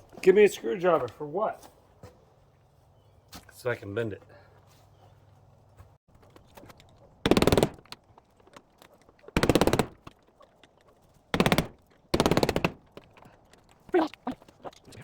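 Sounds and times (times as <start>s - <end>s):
impact driver rapid clicks: 7.3s - 8.0s, 9.4s - 10.1s, 11.4s - 13.0s.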